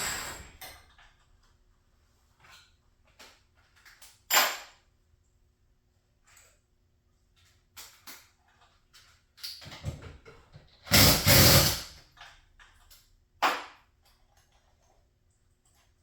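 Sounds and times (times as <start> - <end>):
loud rushing scrape: 0.0 - 0.6.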